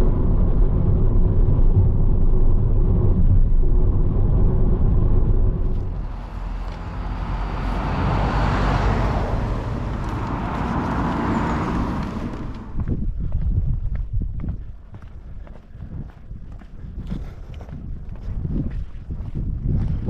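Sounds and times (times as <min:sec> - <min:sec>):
low road rumble: 0:00.0 - 0:20.0
passing car hiss: 0:05.8 - 0:12.8
footsteps clicking: 0:10.0 - 0:20.0.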